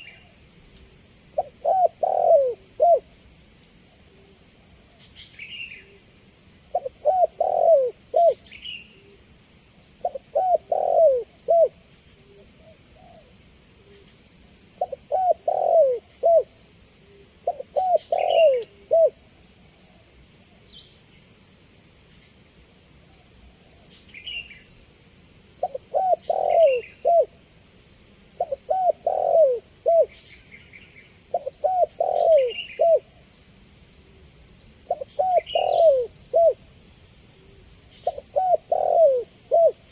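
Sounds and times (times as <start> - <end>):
steady high hiss: 0.0 - 39.9
dove cooing: 1.4 - 3.1, 6.7 - 8.4, 10.0 - 13.3, 14.8 - 19.2, 25.6 - 27.4, 28.4 - 30.2, 31.3 - 33.2, 34.9 - 36.6, 38.0 - 39.9
small birds chirping: 17.1 - 19.1, 25.6 - 27.3, 28.4 - 33.1, 34.9 - 36.6, 37.8 - 39.7.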